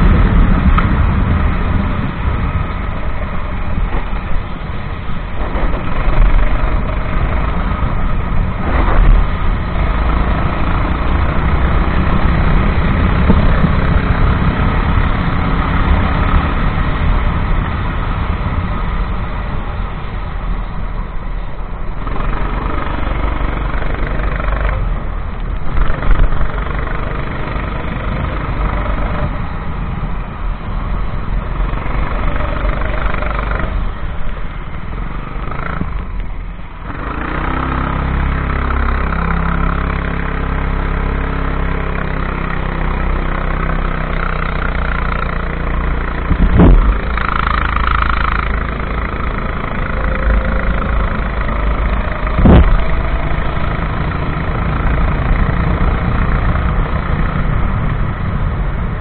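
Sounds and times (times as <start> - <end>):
kart engine running: 0.0 - 59.0
sharp knocks: 46.3 - 48.5.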